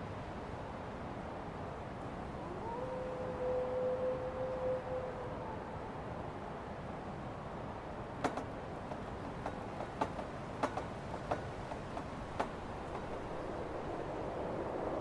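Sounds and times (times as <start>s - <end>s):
blizzard wind rushing: 0.0s - 15.0s.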